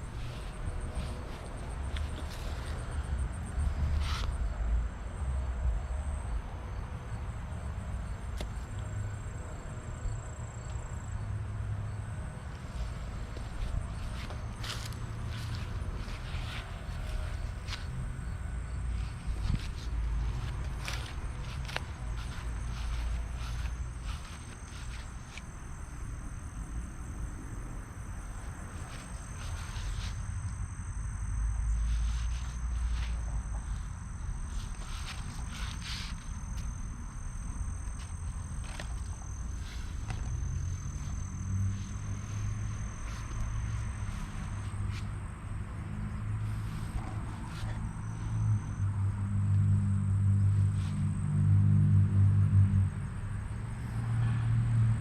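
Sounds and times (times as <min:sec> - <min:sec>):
soft footsteps: 0:00.0 - 0:03.0, 0:12.5 - 0:18.2, 0:18.8 - 0:25.5, 0:31.8 - 0:45.2
insects trilling: 0:00.0 - 0:55.0.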